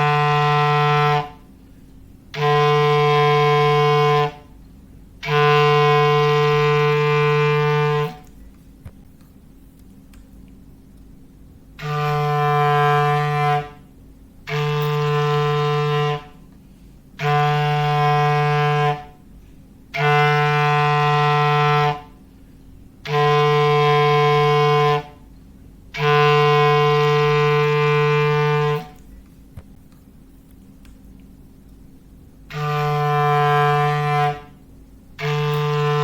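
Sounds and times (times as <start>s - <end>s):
foghorn blasts: 0.0s - 1.6s, 2.3s - 4.6s, 5.2s - 8.4s, 11.7s - 22.4s, 23.0s - 29.1s, 32.4s - 36.0s.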